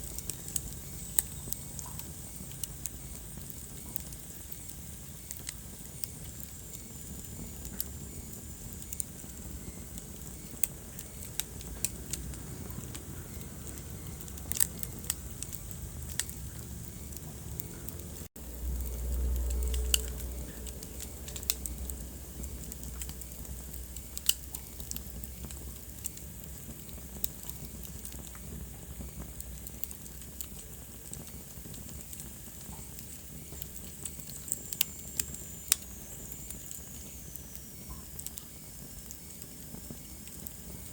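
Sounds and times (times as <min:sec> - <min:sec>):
wood fire crackling: 0:00.0 - 0:40.9
low rumble: 0:11.5 - 0:25.6.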